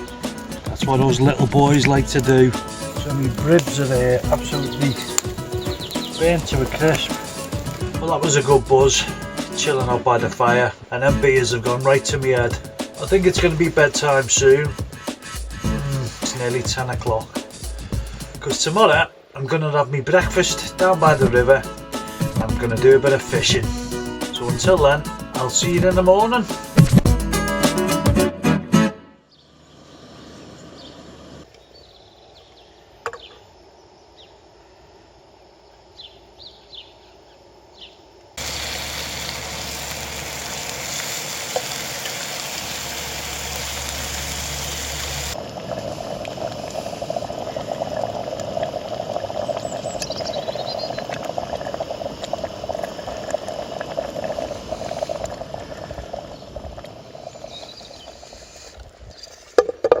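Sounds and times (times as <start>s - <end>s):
rushing river water: 0.0s - 18.9s
food frying in a pan: 1.9s - 8.0s, 38.4s - 58.2s
faint bird chirps: 49.4s - 51.1s.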